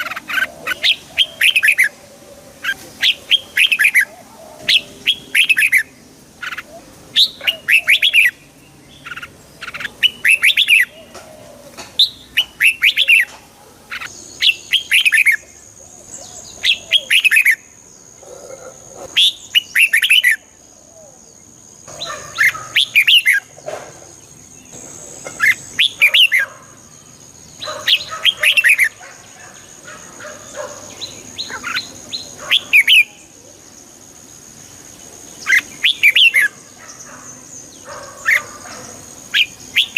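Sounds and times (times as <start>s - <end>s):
bird whistling song: 0.0s - 2.0s, 2.6s - 8.4s, 9.0s - 11.2s, 12.0s - 13.3s, 14.0s - 15.5s, 16.3s - 17.6s, 19.2s - 20.5s, 22.0s - 23.5s, 25.3s - 26.5s, 35.4s - 37.1s, 39.3s - 39.9s.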